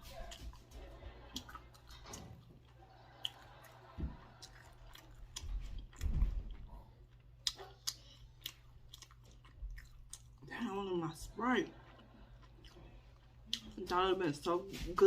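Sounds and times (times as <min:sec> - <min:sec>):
chewing food: 0:00.0 - 0:14.5
wet mouth clicks: 0:07.4 - 0:09.1.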